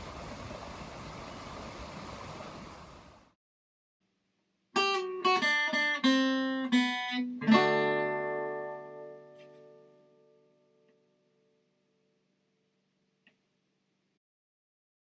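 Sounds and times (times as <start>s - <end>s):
creek rushing: 0.0s - 3.3s
acoustic guitar music: 4.8s - 11.6s.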